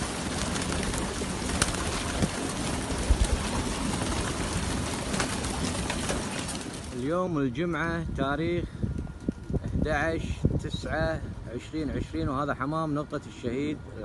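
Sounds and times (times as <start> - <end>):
pigeons cooing: 0.0 - 6.9
sharp clicks of birds moving: 0.0 - 7.0.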